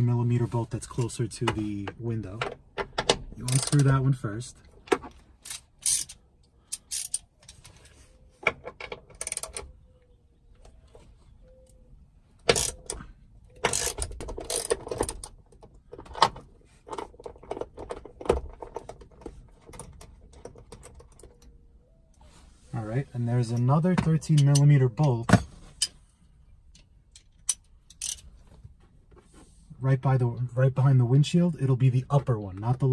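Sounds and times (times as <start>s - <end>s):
ratchet wrench clicking: 3.5s - 3.9s, 5.4s - 7.2s, 9.2s - 9.6s, 12.5s - 13.0s, 13.6s - 15.2s, 27.4s - 28.2s
metallic clinks and rattles: 5.4s - 7.3s.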